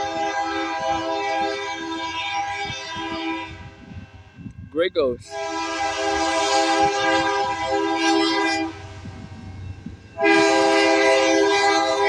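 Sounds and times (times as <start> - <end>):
locomotive air horn blasts: 0.0 - 3.9, 5.2 - 9.1, 10.2 - 12.0
train rumbling: 0.0 - 12.0.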